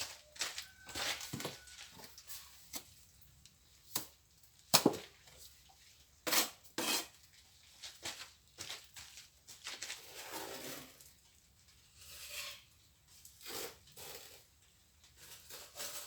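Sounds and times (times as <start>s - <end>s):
trowel scraping hard surfaces: 6.2s - 7.2s, 10.0s - 11.1s, 11.9s - 14.5s, 15.2s - 16.0s.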